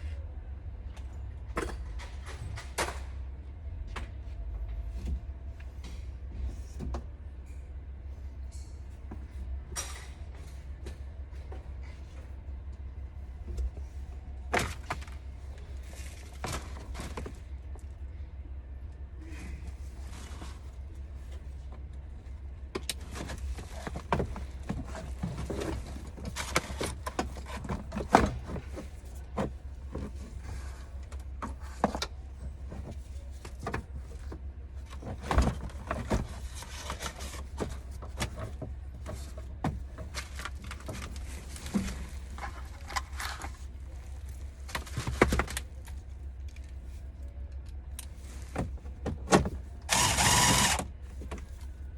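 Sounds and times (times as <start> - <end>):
steady low hum: 0.0 - 51.9
hand tools clicking and clanking: 49.4 - 50.9.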